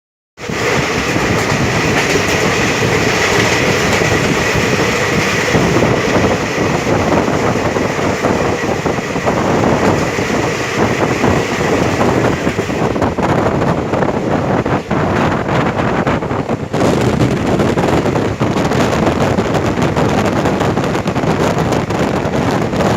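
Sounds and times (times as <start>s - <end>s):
clickety-clack over rail joints: 0.4s - 22.9s
train wheels rumbling on rails: 0.4s - 22.9s.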